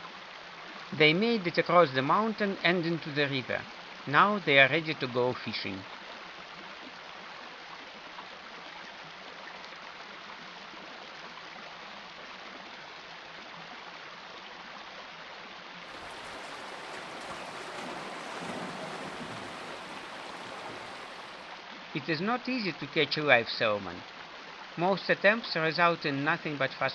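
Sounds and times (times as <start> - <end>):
shallow river rushing: 15.8 - 22.6.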